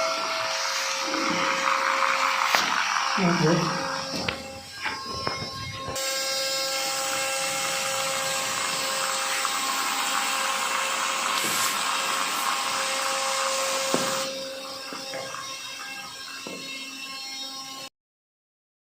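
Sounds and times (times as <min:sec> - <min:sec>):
electric motor whine: 0:00.0 - 0:17.9
propeller air rush: 0:05.8 - 0:14.3.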